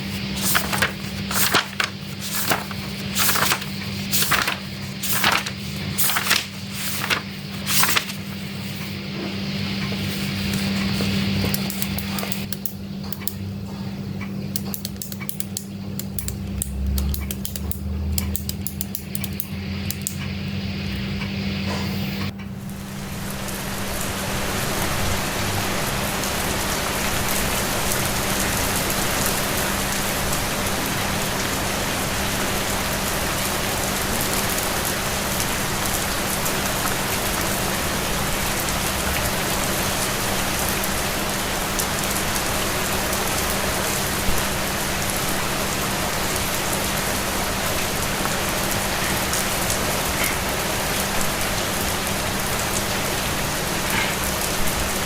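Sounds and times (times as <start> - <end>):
steady low hum: 0.0 - 25.9
rain on a hard surface: 22.6 - 55.0.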